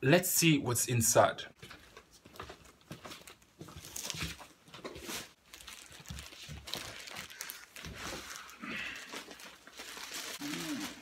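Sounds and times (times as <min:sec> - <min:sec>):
wrapping rustling and tearing: 0:03.1 - 0:11.0.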